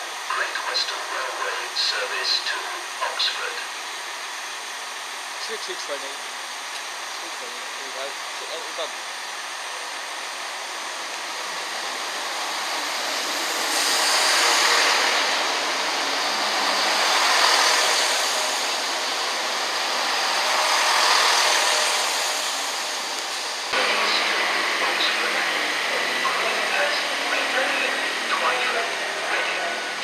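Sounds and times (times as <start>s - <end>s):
train wheels rushing: 10.7s - 30.0s.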